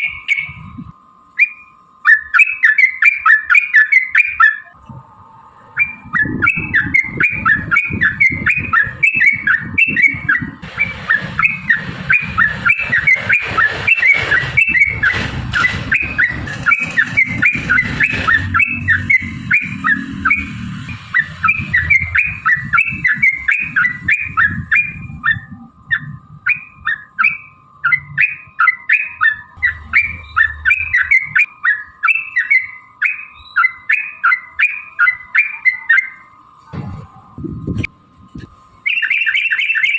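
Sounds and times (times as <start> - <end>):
bulbul chattering song: 0.0 - 36.5, 38.7 - 39.9
low rumble: 4.8 - 26.9, 29.4 - 31.5.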